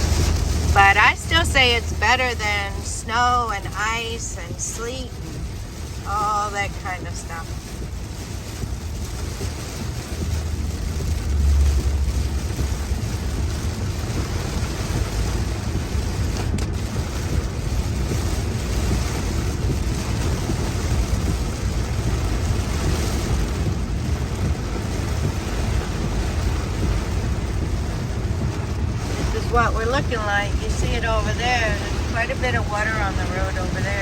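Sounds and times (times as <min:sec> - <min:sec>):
deep low rumble: 0:00.0 - 0:34.0
heavy rain: 0:00.0 - 0:34.0
wet road noise: 0:00.0 - 0:34.0
low bump: 0:08.6 - 0:34.0.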